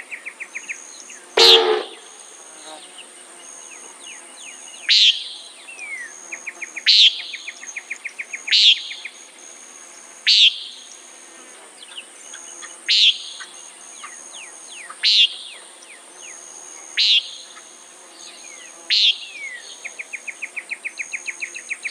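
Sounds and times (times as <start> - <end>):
insects droning: 0.0 - 21.9
nighthawk nasal call: 1.4 - 2.2.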